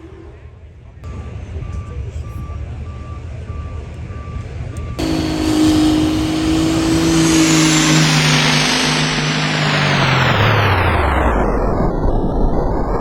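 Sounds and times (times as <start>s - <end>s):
loud engine drone with hiss: 5.0s - 12.1s
truck engine rumbling: 5.0s - 12.5s.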